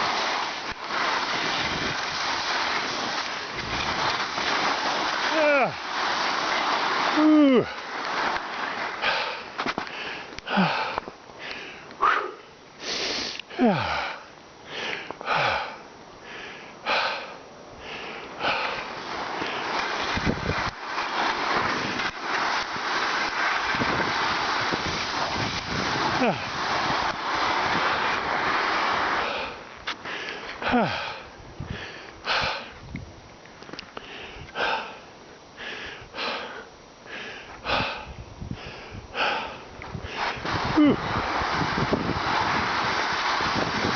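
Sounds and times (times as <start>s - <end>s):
person breathing heavily: 9.0s - 19.8s, 29.2s - 32.8s, 34.0s - 41.1s
person sighing: 10.4s - 11.0s, 13.1s - 14.3s, 30.6s - 31.3s.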